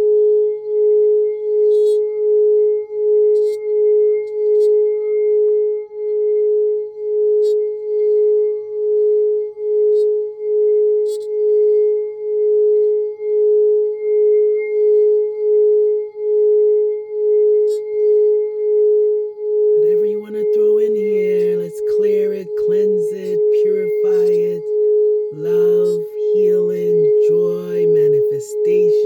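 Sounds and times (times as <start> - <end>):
singing bowl ringing tone: 0.0 - 19.8.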